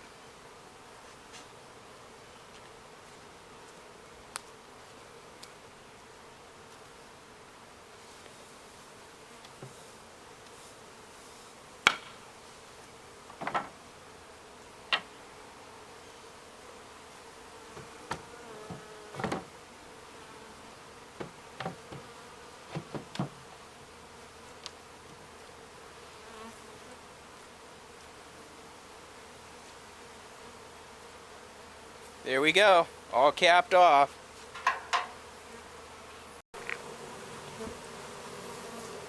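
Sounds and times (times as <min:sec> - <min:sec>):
honeybees buzzing: 0:00.0 - 0:39.0
hive lid knocking: 0:17.7 - 0:19.5, 0:21.2 - 0:22.1, 0:22.7 - 0:23.4, 0:34.5 - 0:35.2.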